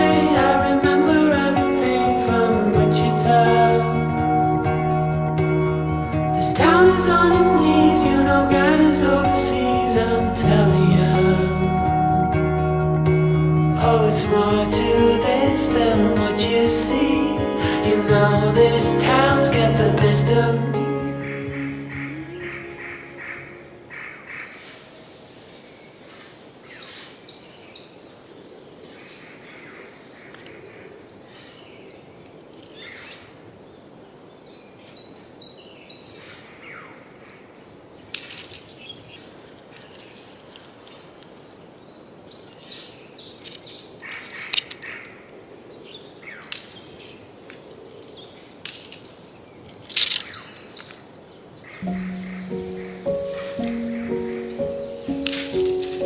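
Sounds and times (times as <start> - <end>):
birds singing high trills: 20.8 - 24.8, 34.1 - 36.9, 42.0 - 45.0, 48.2 - 56.0
faint bird chirps: 49.6 - 56.0.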